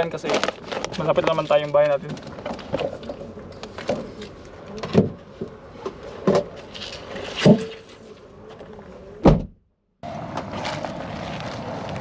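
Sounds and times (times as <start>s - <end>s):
vehicle hum: 10.0s - 12.0s.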